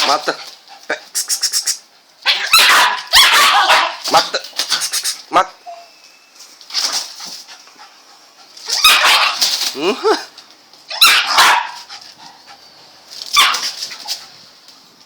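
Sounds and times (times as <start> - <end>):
dog barking: 2.2 - 4.3, 8.8 - 9.4, 10.9 - 12.4, 13.3 - 13.8.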